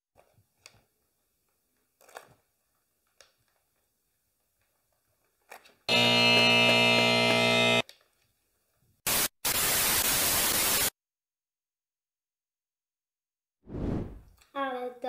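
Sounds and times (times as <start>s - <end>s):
static-like hiss bursts: 9.1s - 10.9s.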